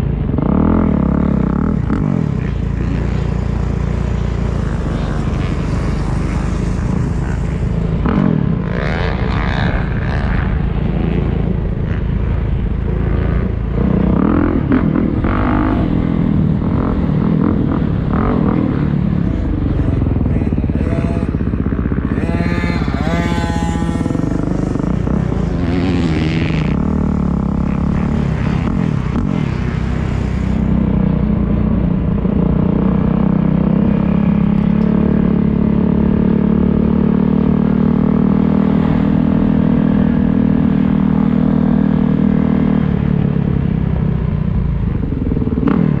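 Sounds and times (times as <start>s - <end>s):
motocross bike engine revving: 0.3s - 31.2s.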